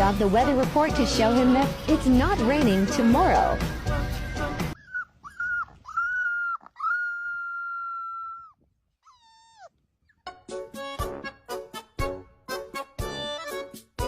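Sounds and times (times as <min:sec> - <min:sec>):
dog whining: 0:04.8 - 0:10.2.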